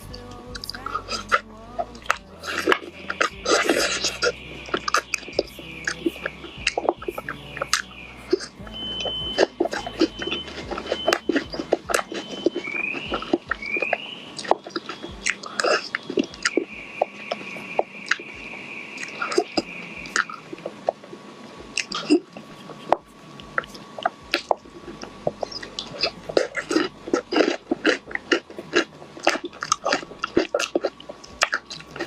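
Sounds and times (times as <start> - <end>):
faint steady high tone: 0.0 - 32.0
chewing with wet mouth clicks: 2.0 - 32.0.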